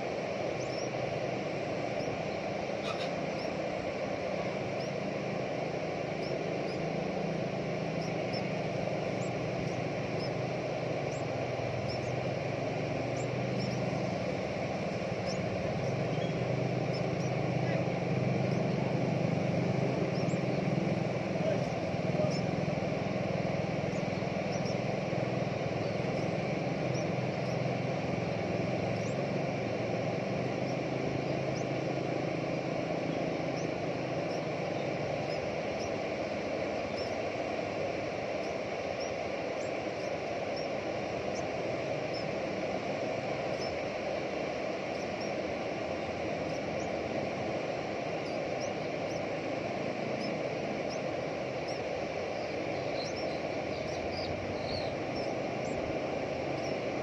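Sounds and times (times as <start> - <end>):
low engine-like hum: 0.0 - 57.0
faint high chirps: 0.4 - 44.1.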